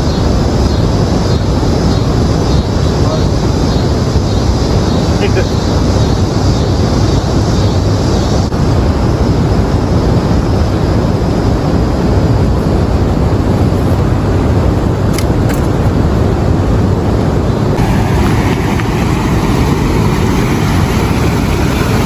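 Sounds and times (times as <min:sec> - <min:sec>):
water roaring through spillway: 0:17.7 - 0:22.0.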